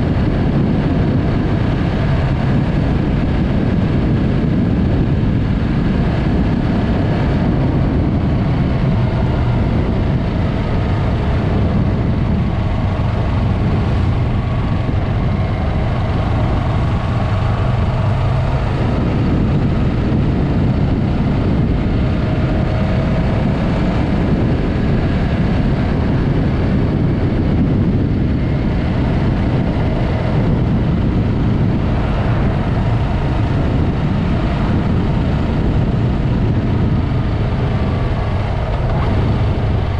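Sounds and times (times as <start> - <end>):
motorcycle engine running: 0.0 - 39.9
wind rushing on microphone: 0.0 - 39.9.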